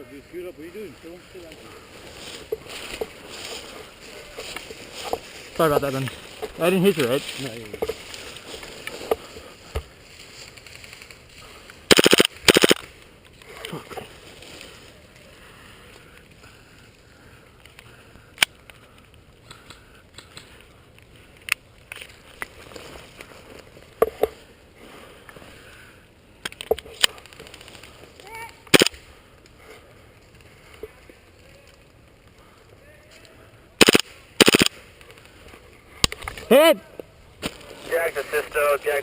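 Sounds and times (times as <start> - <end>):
airsoft gun bursts: 11.9 - 12.8, 28.7 - 29.0, 33.8 - 34.8
sharp single gunshots: 11.9 - 12.8, 33.8 - 34.7.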